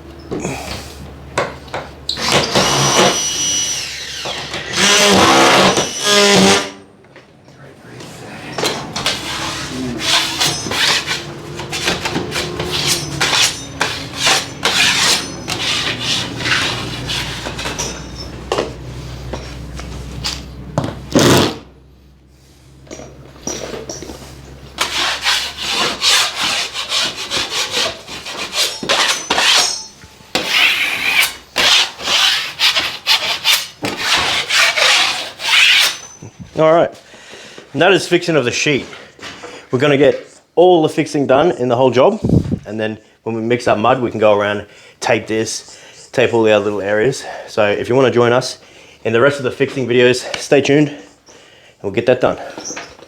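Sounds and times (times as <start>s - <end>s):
hand tool rasping plasterboard: 4.7s - 6.7s, 9.0s - 17.8s, 24.8s - 29.8s, 30.4s - 36.1s.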